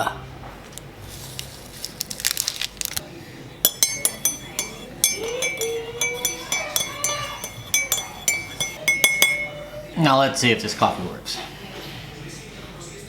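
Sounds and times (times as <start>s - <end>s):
spoon clinking in ceramic mug: 3.7s - 9.8s.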